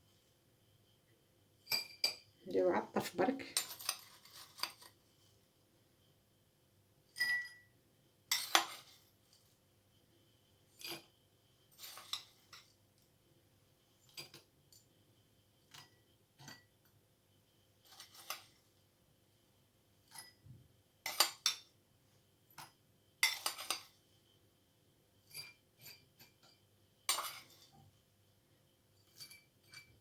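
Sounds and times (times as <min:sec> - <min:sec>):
spoon clinking against glass: 0:01.7 - 0:02.3, 0:07.2 - 0:07.7.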